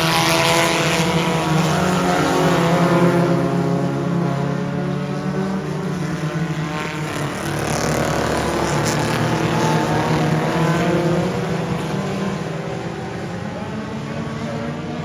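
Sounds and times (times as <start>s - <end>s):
race car engines passing: 0.0s - 15.0s.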